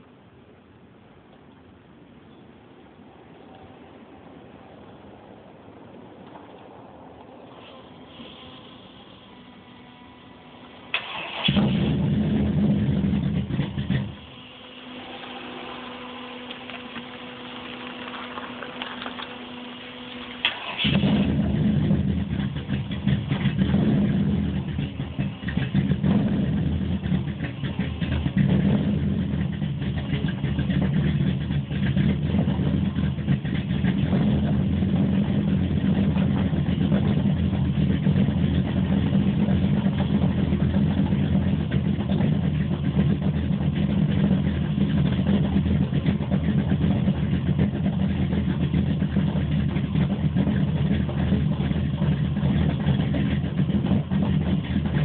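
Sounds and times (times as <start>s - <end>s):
engine idling unevenly: 3.6s - 55.0s.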